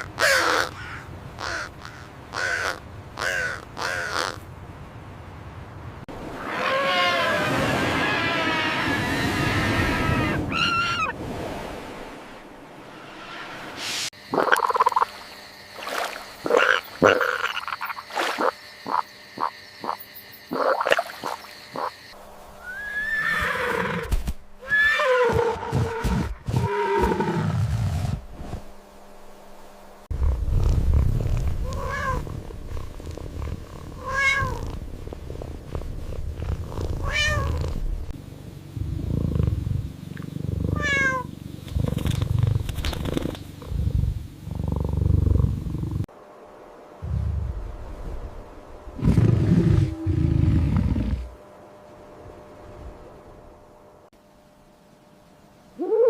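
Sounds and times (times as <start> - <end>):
cat meowing: 31.6 - 32.2, 34.0 - 34.6, 37.0 - 37.6, 40.8 - 41.3.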